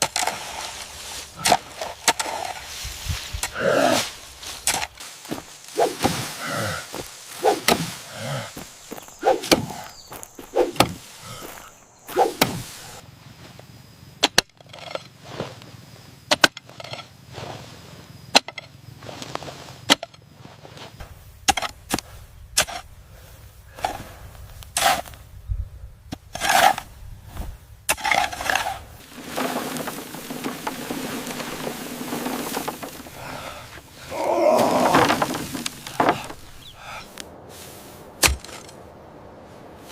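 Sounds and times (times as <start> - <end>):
scraping: 0.0 - 13.0, 20.4 - 25.4, 26.1 - 38.8
steady hiss: 0.0 - 14.1, 20.8 - 27.9, 28.6 - 39.9.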